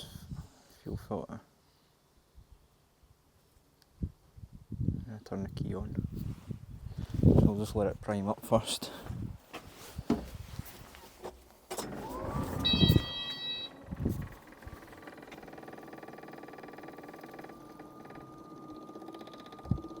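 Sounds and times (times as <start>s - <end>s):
thump: 10.1s - 10.3s
electric fuel pump humming and ticking: 11.7s - 20.0s
short high beep: 12.6s - 13.8s.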